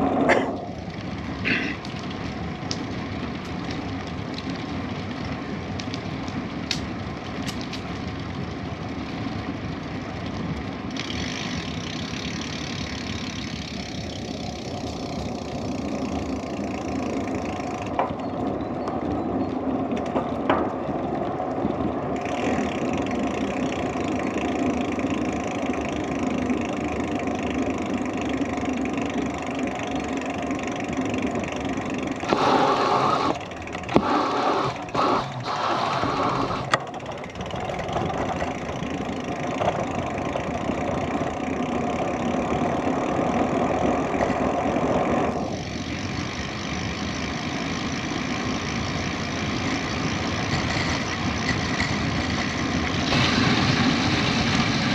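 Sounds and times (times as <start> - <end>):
bicycle tyres on rough track: 0.0 - 54.9.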